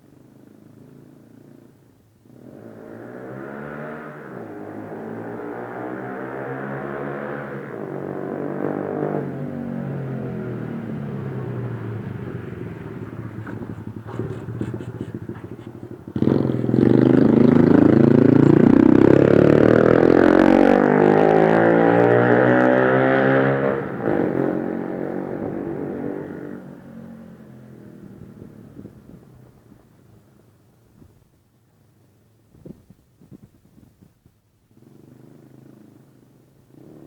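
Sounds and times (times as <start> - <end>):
motorcycle engine revving: 2.3 - 28.9.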